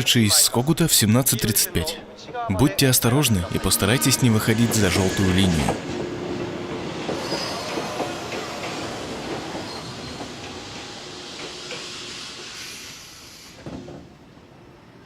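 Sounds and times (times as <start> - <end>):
train pulling in: 2.0 - 15.0
thin squeals of train brakes: 7.0 - 14.0.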